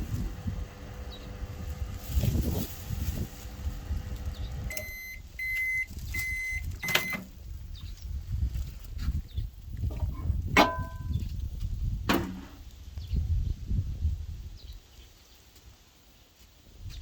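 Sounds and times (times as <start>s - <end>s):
microwave oven humming: 0.0s - 7.3s
high beeps: 4.7s - 7.2s.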